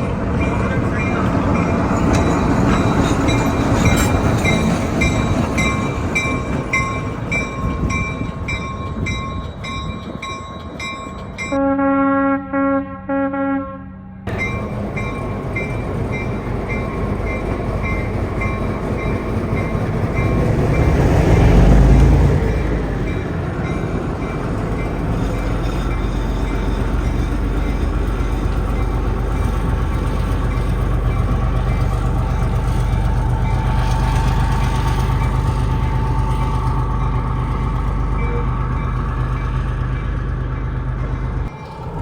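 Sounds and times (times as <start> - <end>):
railroad crossing bells ringing: 0.0 - 12.0, 14.3 - 42.0
train rumbling: 0.0 - 12.3, 14.2 - 42.0
locomotive horn blasts: 11.5 - 14.4.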